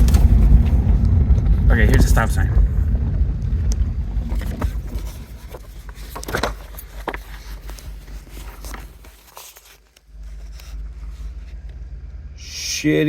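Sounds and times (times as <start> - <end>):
low rumble: 0.0 - 9.3, 10.1 - 13.0
footsteps: 0.0 - 11.7
rustling: 0.0 - 12.2.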